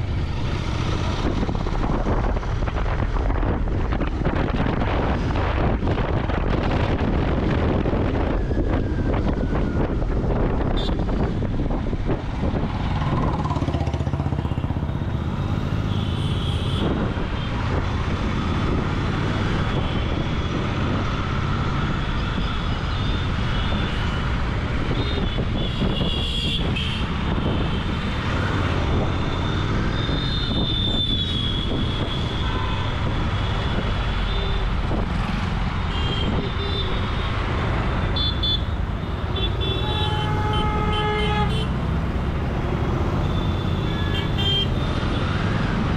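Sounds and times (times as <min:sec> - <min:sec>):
road traffic: 0:00.0 - 0:45.9
vehicle horns honking: 0:35.9 - 0:37.1, 0:38.1 - 0:41.8, 0:43.2 - 0:44.8.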